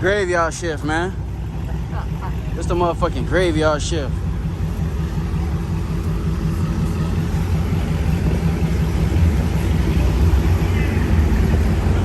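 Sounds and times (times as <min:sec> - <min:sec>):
deep car engine rumble: 0:00.0 - 0:12.0.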